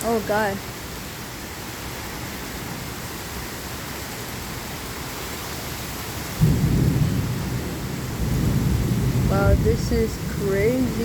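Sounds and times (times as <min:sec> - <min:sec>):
heavy rain falling: 0:00.0 - 0:11.0
thunder rumbling: 0:06.3 - 0:11.0.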